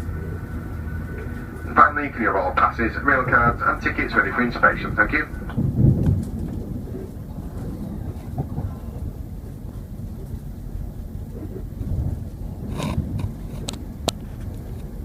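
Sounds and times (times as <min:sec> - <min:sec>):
train diesel engine rumble: 0:00.0 - 0:15.0
train wheels on track: 0:00.0 - 0:15.0.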